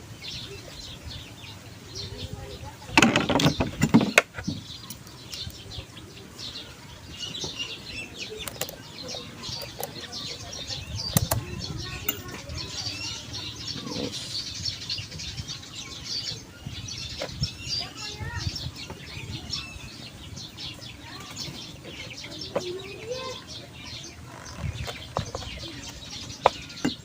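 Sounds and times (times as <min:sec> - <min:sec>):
small birds chirping: 0:00.0 - 0:27.0
tools clicking and knocking: 0:08.4 - 0:08.8, 0:09.5 - 0:10.0, 0:11.1 - 0:11.4, 0:12.1 - 0:12.4.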